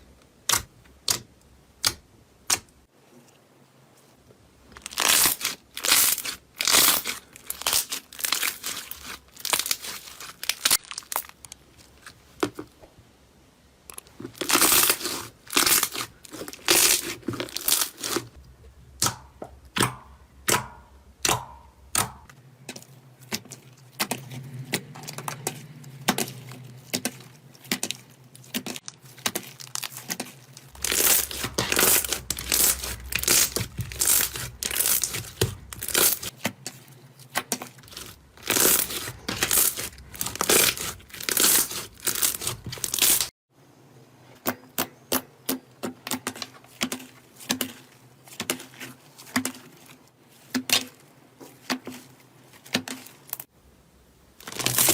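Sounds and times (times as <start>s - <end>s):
slime crackling and popping: 4.8s - 12.0s, 13.9s - 18.4s, 26.2s - 36.3s, 37.8s - 43.3s, 54.4s - 54.9s.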